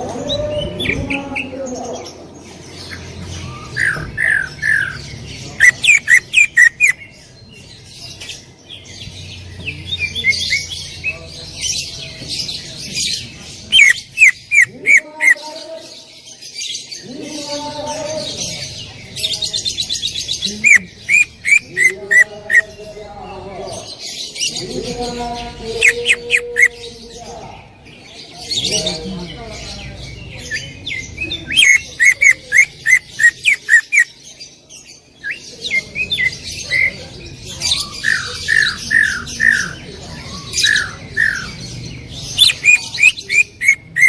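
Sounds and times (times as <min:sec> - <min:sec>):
bird chattering: 0:00.0 - 0:15.6, 0:16.3 - 0:44.0
bird singing loudly: 0:02.8 - 0:07.2, 0:13.7 - 0:16.0, 0:20.3 - 0:23.0, 0:23.9 - 0:27.2, 0:30.4 - 0:34.2, 0:37.6 - 0:44.0.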